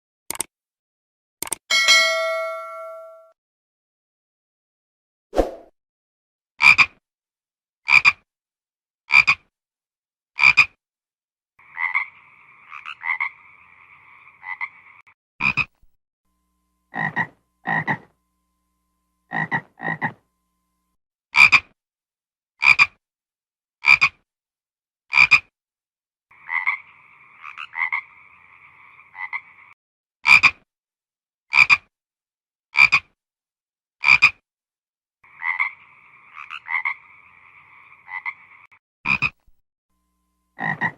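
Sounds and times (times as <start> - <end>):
frog trill: 11.6 - 15.7, 16.9 - 18.2, 19.3 - 20.2, 26.3 - 30.6, 35.2 - 39.4, 40.6 - 40.9
frog croaking: 11.6 - 15.8, 16.9 - 18.2, 19.3 - 20.2, 26.3 - 30.6, 35.2 - 39.4, 40.6 - 40.9.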